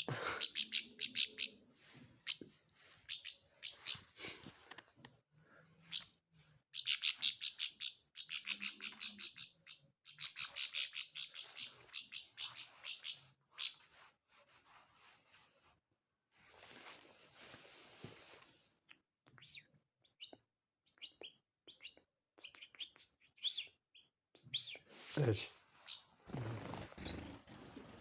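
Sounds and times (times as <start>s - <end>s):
small bird chirping: 0.0s - 2.4s, 3.0s - 4.2s, 5.8s - 13.9s, 18.8s - 24.9s, 25.8s - 28.0s.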